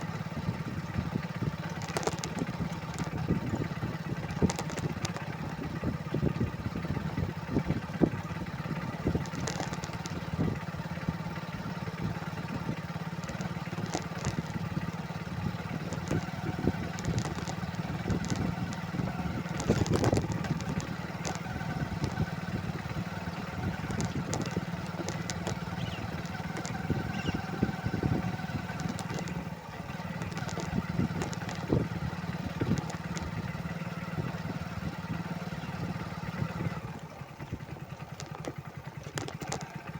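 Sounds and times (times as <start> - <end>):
motorcycle engine running: 0.0 - 39.9
knocks and rattles: 1.7 - 5.6, 9.0 - 10.4, 13.1 - 14.9, 15.6 - 33.4, 38.0 - 39.9.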